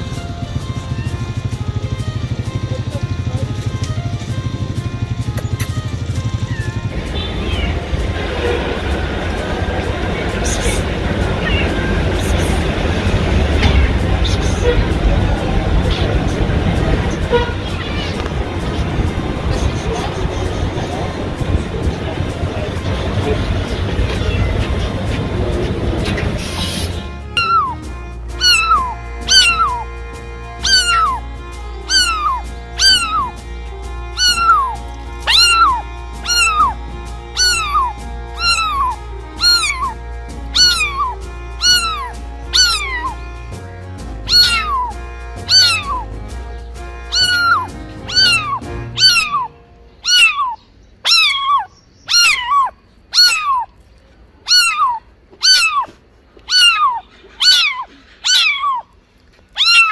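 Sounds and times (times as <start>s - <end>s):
background music: 0.0s - 50.4s
cat meowing: 6.4s - 16.4s, 17.0s - 20.4s, 23.9s - 24.8s, 27.4s - 27.8s, 28.4s - 29.8s, 30.6s - 31.2s, 31.9s - 33.4s, 34.2s - 36.8s, 37.4s - 43.2s, 44.3s - 46.1s, 47.1s - 53.8s, 54.4s - 59.9s.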